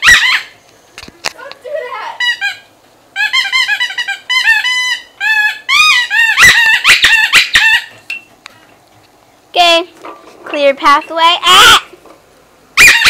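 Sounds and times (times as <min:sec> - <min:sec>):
puppies yelping: 0:00.0 - 0:00.6, 0:02.2 - 0:08.0, 0:11.5 - 0:11.9, 0:12.8 - 0:13.0.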